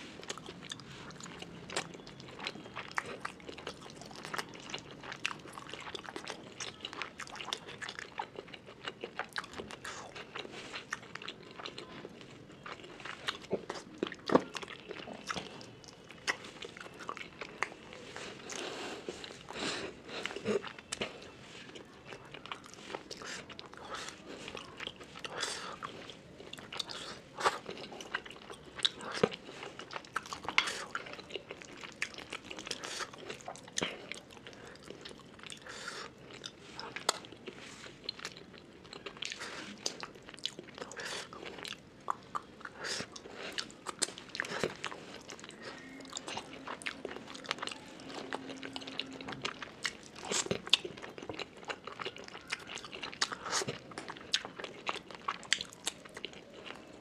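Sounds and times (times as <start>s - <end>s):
wet chewing: 0.2s - 57.0s.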